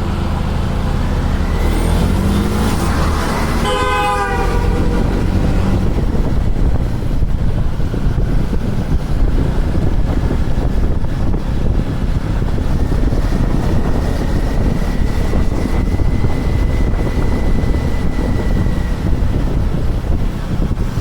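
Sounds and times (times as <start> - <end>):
motorcycle engine running: 0.0 - 21.0
wind rush on microphone: 0.6 - 21.0
thin whine rising in pitch: 12.7 - 20.2.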